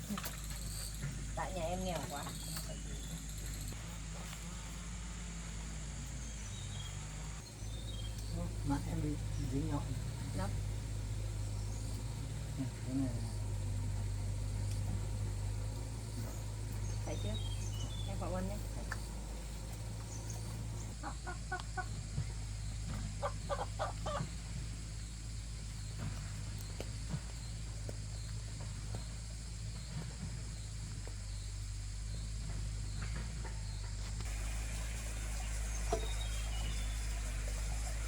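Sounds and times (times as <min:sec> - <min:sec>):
steady low hum: 0:00.0 - 0:38.0
chicken clucking: 0:23.2 - 0:24.3.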